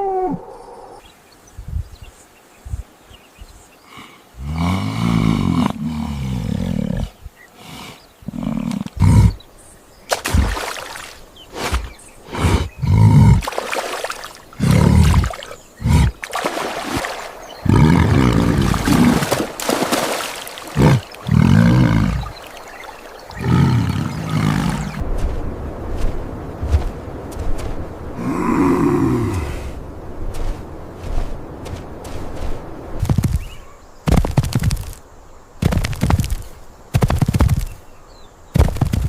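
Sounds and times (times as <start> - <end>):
large animal roaring: 14.6 - 16.2, 17.6 - 19.3, 20.8 - 22.4, 23.3 - 25.0, 28.2 - 29.7.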